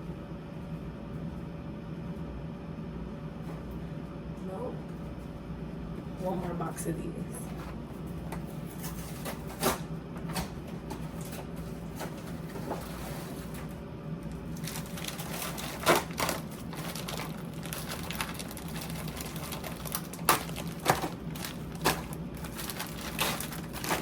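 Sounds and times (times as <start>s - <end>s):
steady low hum: 0.0s - 24.0s
packaging rustling: 14.4s - 24.0s.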